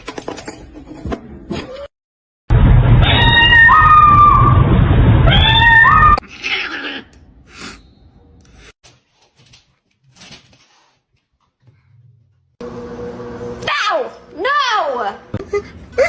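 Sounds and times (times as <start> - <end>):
cat yowling: 3.0 - 4.6, 5.3 - 7.1.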